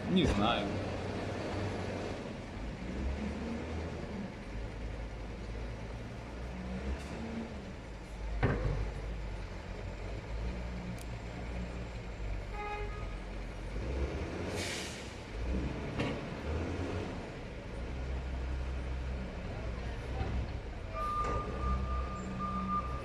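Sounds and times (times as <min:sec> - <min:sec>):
heavy diesel machinery running: 0:00.0 - 0:23.0
air brakes hissing: 0:14.5 - 0:15.3
brief squeal: 0:20.9 - 0:23.0.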